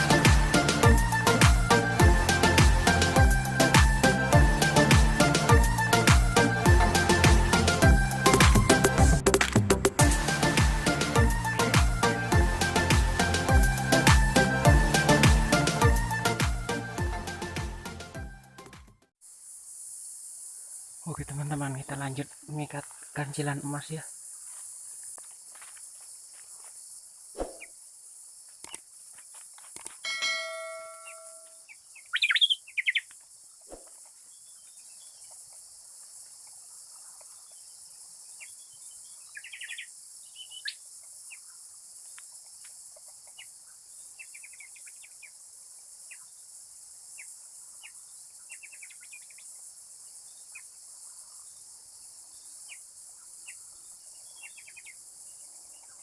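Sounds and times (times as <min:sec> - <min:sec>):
insects droning: 0:19.2 - 0:56.0
ringing bell-like tone: 0:30.0 - 0:31.6
bird chirping calls: 0:30.1 - 0:33.1, 0:38.4 - 0:41.6.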